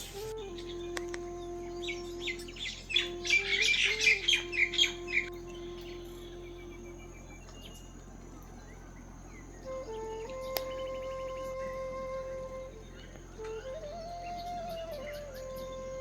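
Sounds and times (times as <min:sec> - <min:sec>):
birds chirping: 0:00.0 - 0:16.0
music of long held notes: 0:00.0 - 0:16.0.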